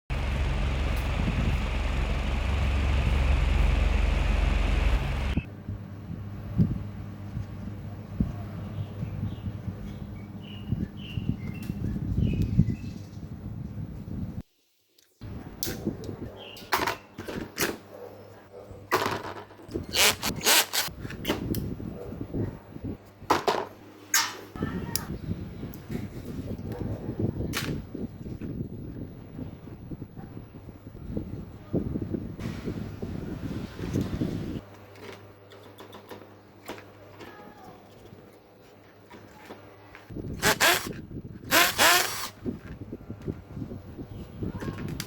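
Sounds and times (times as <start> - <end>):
mechanical running noise with hum: 0.1 - 14.4, 39.6 - 45.0
hand tool scraping: 20.0 - 20.9, 40.4 - 42.3.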